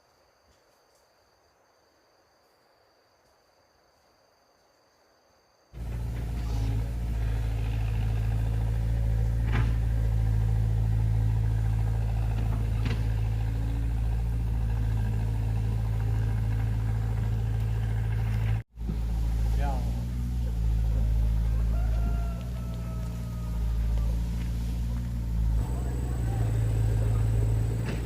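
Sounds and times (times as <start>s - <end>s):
vehicle engine running: 5.8s - 28.0s.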